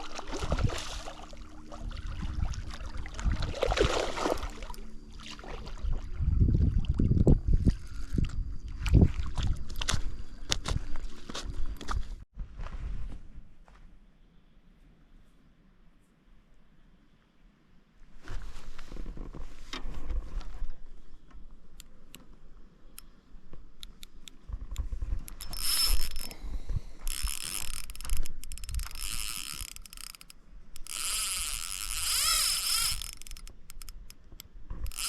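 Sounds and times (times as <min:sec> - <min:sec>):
fishing reel drag buzzing: 0:25.3 - 0:34.2.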